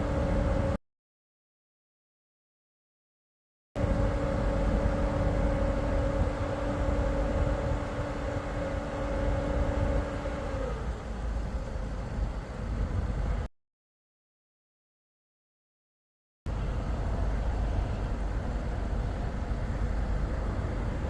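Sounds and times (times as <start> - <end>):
vehicle engine rumble: 0.0 - 0.8, 3.8 - 13.5, 16.5 - 21.0.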